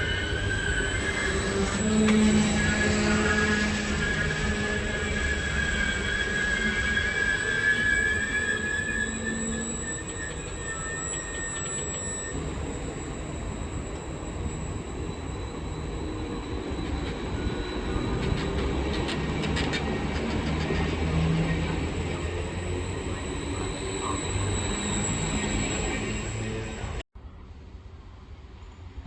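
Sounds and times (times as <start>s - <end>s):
electric train rumbling on rails: 0.0s - 29.0s
rail clicks: 16.2s - 27.0s.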